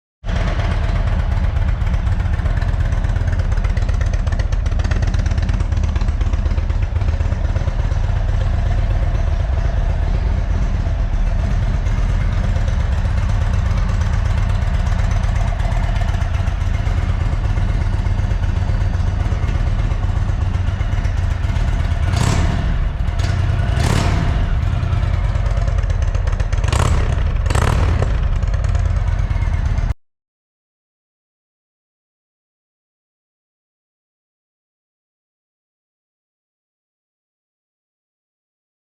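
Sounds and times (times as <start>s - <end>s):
motorcycle engine idling: 0.3s - 30.0s.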